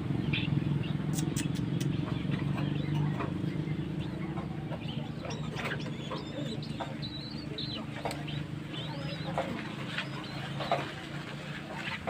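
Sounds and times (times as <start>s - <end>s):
rail chicks calling and clicking: 0.0s - 12.0s
steady low hum: 0.0s - 12.0s.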